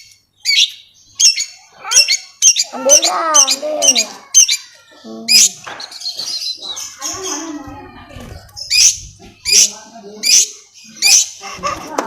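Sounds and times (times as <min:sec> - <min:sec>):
bird singing sharp high chirps: 0:00.0 - 0:07.6
bird warbling and chattering: 0:00.0 - 0:12.0.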